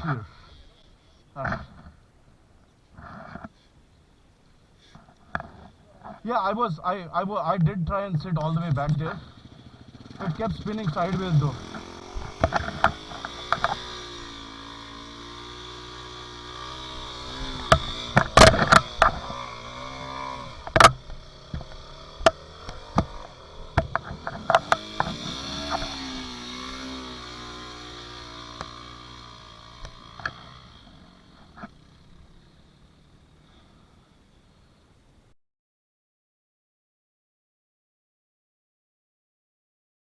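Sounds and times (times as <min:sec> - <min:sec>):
dirt bike engine revving: 0:07.8 - 0:34.2
sharp knocks: 0:16.8 - 0:26.9.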